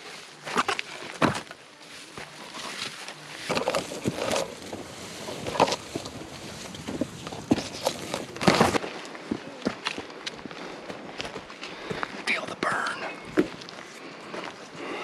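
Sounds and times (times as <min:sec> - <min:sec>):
footsteps on dirt trail: 0:00.0 - 0:15.0
backpack gear rustling: 0:01.9 - 0:09.0.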